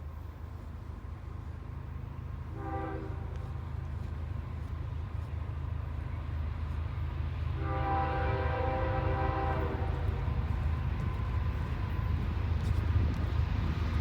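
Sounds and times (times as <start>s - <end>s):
low rumble of locomotive: 0.0s - 14.0s
locomotive air horn blast: 2.5s - 3.4s, 7.6s - 10.3s.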